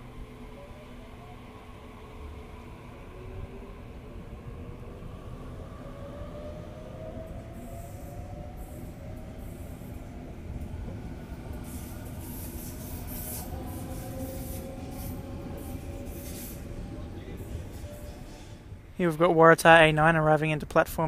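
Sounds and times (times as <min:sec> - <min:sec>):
train wheels rumbling on rail: 0:02.2 - 0:20.7
train motor whine: 0:11.6 - 0:18.7.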